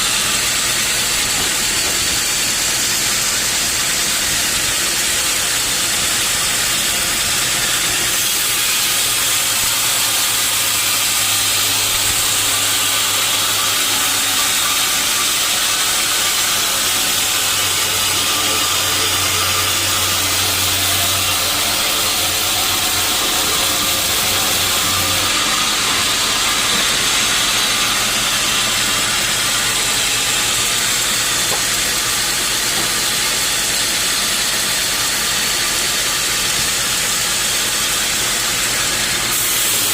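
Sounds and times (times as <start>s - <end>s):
saw cutting through log: 0.0s - 39.9s
low motor hum: 14.1s - 33.2s.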